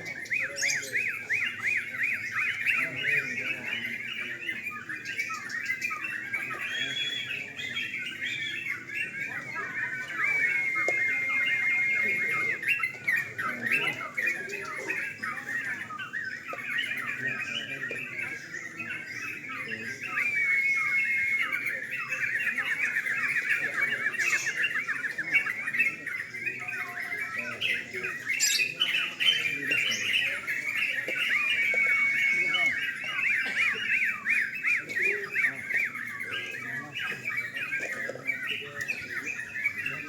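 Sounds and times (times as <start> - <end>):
bird fast trill: 0.0 - 39.9
birds chattering: 0.0 - 40.0
bird whistled note: 9.6 - 12.9, 20.0 - 23.4, 28.4 - 34.6.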